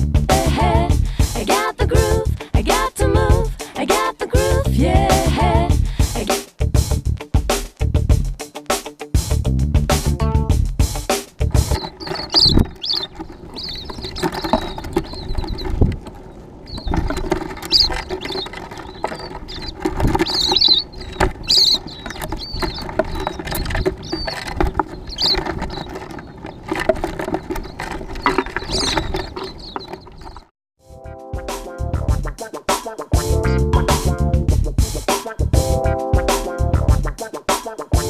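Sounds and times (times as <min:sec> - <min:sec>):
small birds chirping: 0:11.4 - 0:30.5
taps and pattering: 0:11.4 - 0:30.5.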